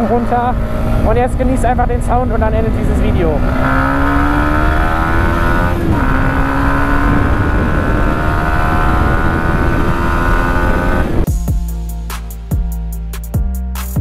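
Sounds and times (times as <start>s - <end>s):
motorcycle engine revving: 0.0s - 12.7s
music with drum hits: 11.2s - 14.0s.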